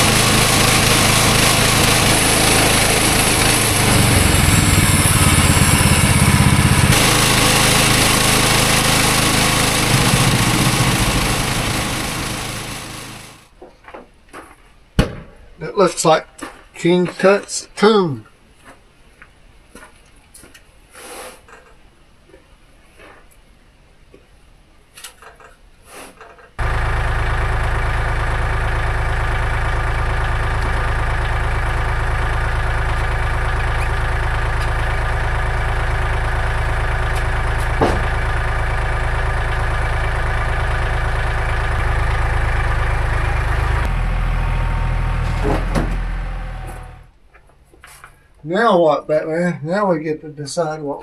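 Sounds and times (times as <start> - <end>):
engine running: 0.0 - 13.5, 26.6 - 47.1.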